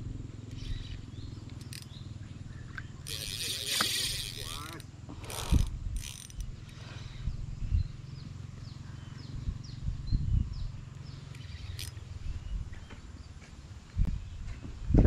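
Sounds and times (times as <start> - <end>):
low rumble of wind: 0.0 - 15.0
bird calling: 0.5 - 5.6, 11.0 - 13.4.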